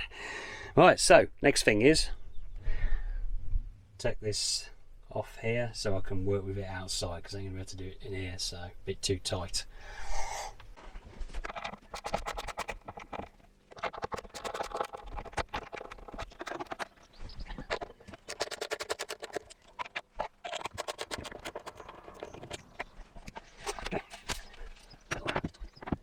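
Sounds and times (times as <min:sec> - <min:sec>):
hand tools clicking and knocking: 0:11.4 - 0:26.0.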